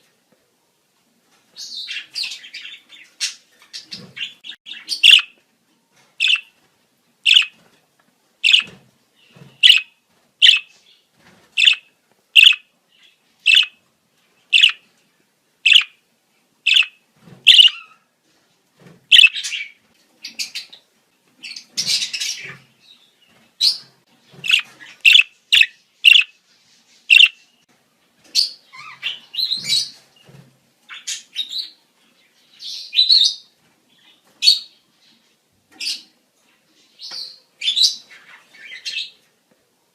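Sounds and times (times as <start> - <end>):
budgerigars chirping and warbling: 1.6 - 5.4, 6.2 - 6.5, 7.3 - 7.6, 8.4 - 10.8, 11.6 - 13.8, 14.5 - 14.8, 15.7 - 15.9, 16.7 - 18.0, 19.1 - 20.8, 23.6 - 26.4, 27.1 - 27.4, 28.4 - 30.0.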